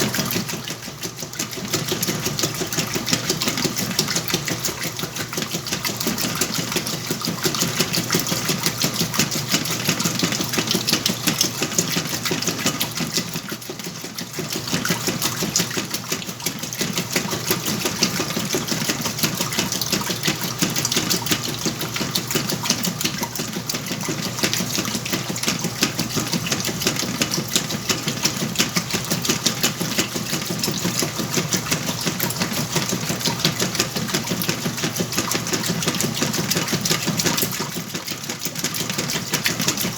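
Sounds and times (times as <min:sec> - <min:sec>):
washing machine running: 0:00.0 - 0:39.9
water sloshing: 0:00.0 - 0:39.9.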